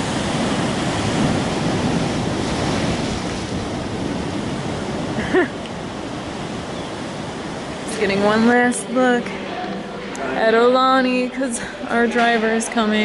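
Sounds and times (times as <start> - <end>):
wind on microphone: 0.0 - 10.3
ocean waves breaking: 0.0 - 13.0.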